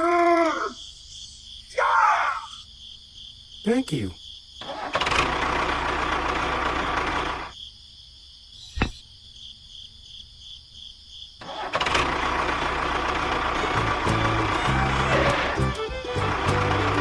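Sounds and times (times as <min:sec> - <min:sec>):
engine rumbling: 0:13.6 - 0:17.0.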